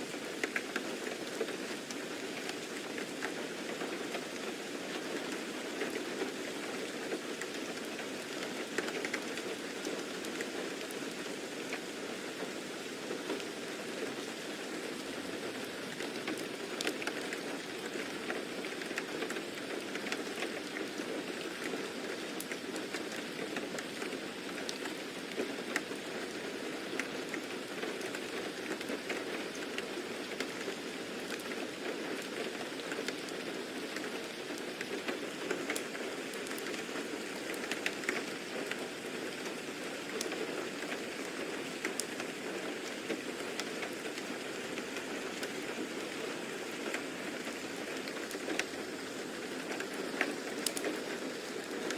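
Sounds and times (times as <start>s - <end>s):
raindrops ticking and pattering: 0.0s - 51.9s
steady rain falling: 0.0s - 51.9s.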